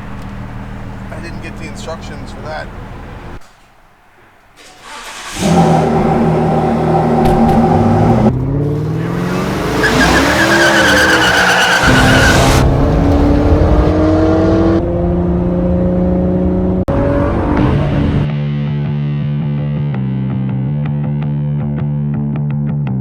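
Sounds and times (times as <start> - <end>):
car engine accelerating with gear changes: 4.8 - 18.3.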